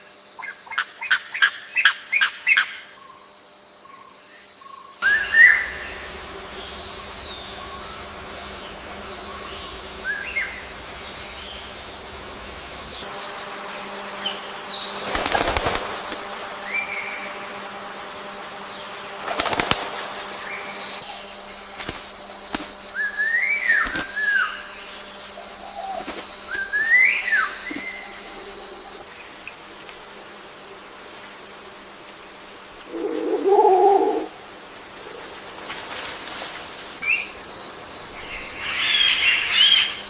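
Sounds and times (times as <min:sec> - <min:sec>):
faint steady hum: 0:00.0 - 0:40.0
wings flapping: 0:05.0 - 0:17.6, 0:18.2 - 0:21.0, 0:21.7 - 0:23.1, 0:23.7 - 0:24.6, 0:25.6 - 0:28.0, 0:35.1 - 0:37.0
birds calling: 0:05.0 - 0:29.7, 0:32.8 - 0:34.6, 0:37.0 - 0:40.0.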